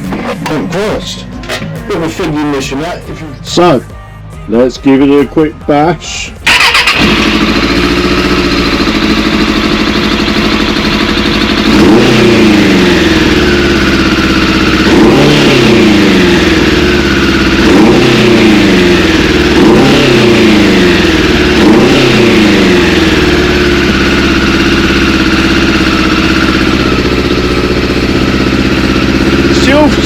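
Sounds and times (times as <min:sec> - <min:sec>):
motorcycle engine revving: 0:06.4 - 0:30.0.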